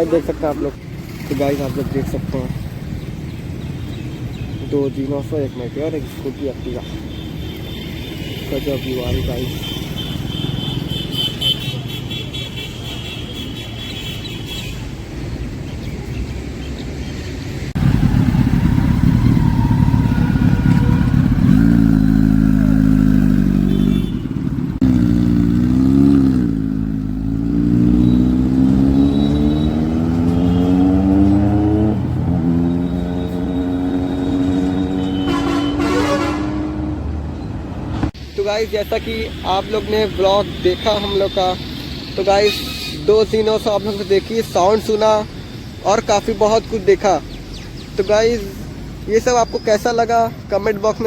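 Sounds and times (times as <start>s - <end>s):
motorcycle engine revving: 17.8s - 37.2s.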